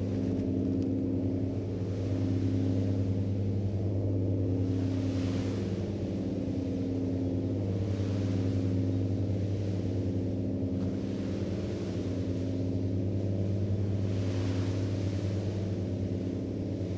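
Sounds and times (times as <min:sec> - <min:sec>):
faint hiss of water or wind: 0:04.5 - 0:16.9.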